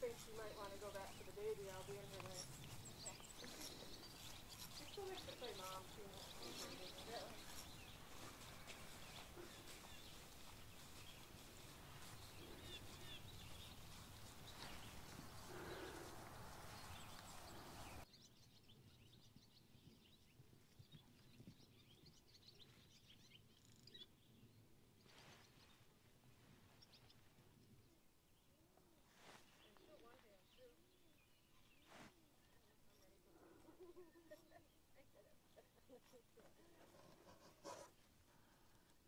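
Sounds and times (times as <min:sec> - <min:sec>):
background hiss: 0:00.0 - 0:18.0
faint bird chirps: 0:00.1 - 0:26.0.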